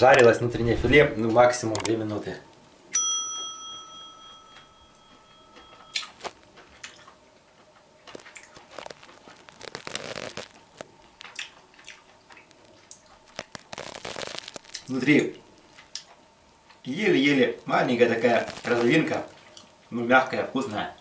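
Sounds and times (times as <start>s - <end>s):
bell-like chime: 3.0s - 6.0s
quiet chewing: 5.7s - 16.9s, 18.4s - 19.9s.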